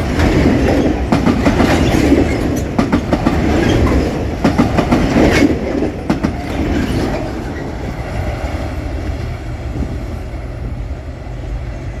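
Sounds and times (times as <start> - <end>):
wheels clacking over rail joints: 0.0 - 8.5
freight wagons rumbling on rails: 0.0 - 12.0.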